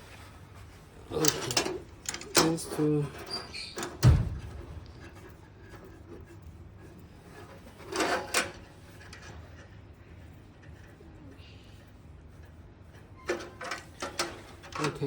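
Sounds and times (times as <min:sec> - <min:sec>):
handling knocks and thumps: 0:03.8 - 0:05.8.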